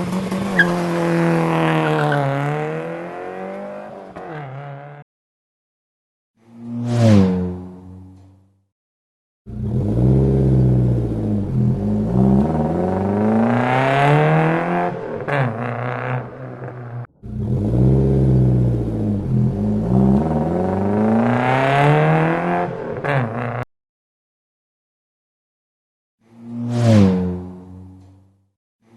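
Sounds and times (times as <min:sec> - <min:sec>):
vehicle engine revving: 0:00.0 - 0:05.0, 0:09.5 - 0:23.7.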